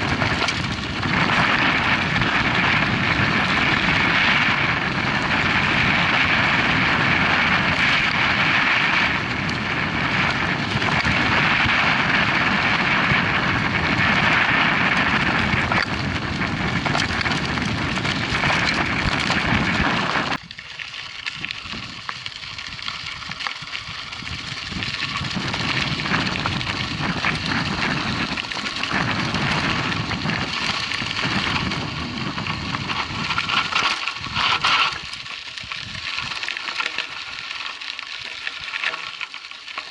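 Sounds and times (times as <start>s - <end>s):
wind rushing over microphone: 0.0s - 37.5s
bike tyres on gravel: 0.0s - 39.9s.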